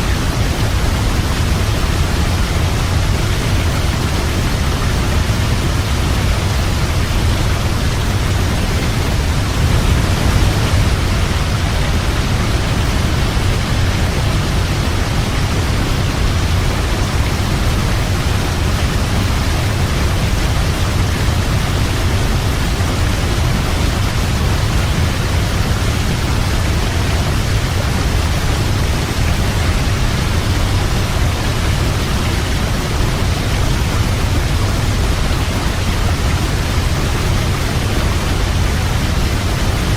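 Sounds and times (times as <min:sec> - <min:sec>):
deep rumble: 0:00.0 - 0:19.3
waterfall rushing: 0:00.0 - 0:39.9.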